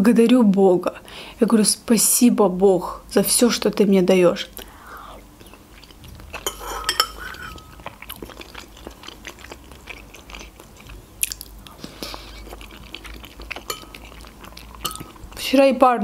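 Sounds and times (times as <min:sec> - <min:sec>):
close-miked chewing: 0:04.6 - 0:15.7
wet mouth smacks and clicks: 0:11.2 - 0:12.5.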